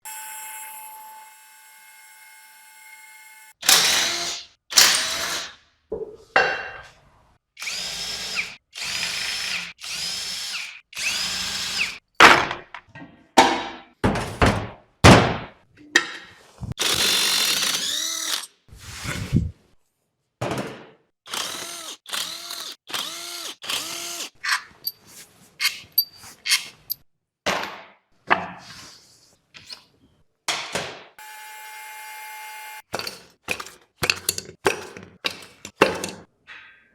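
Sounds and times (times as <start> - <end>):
power drill whirring: 3.0 - 5.4, 7.6 - 12.0, 16.8 - 18.5, 21.3 - 24.4.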